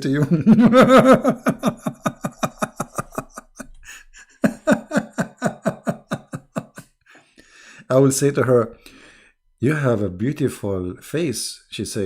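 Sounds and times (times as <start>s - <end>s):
man laughing hard: 0.2s - 6.9s.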